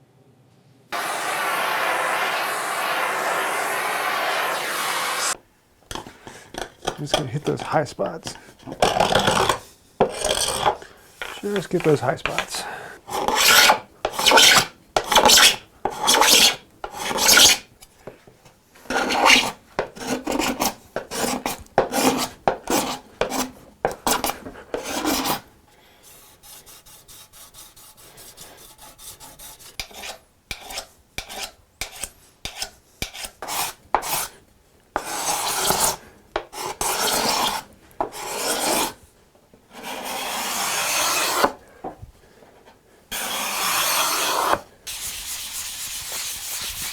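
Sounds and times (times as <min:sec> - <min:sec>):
hand tool rubbing over hardwood: 0:00.9 - 0:05.4, 0:07.1 - 0:17.6, 0:26.0 - 0:34.3, 0:39.8 - 0:41.6, 0:43.1 - 0:46.9.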